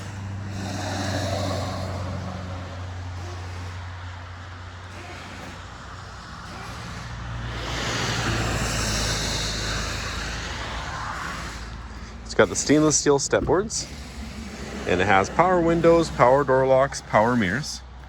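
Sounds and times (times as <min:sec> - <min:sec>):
low engine hum: 0:00.0 - 0:18.0
vehicle passing: 0:00.0 - 0:18.0.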